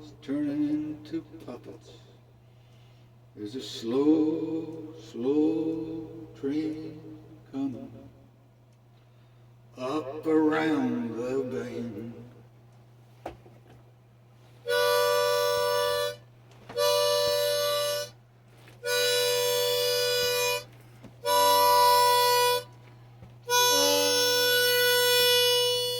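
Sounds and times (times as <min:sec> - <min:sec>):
harmonica chords: 0:14.6 - 0:25.9.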